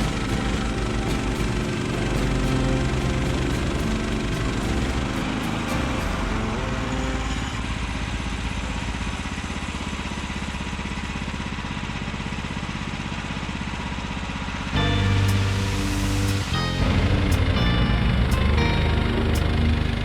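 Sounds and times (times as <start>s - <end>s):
sawmill engine running: 0.0s - 20.0s.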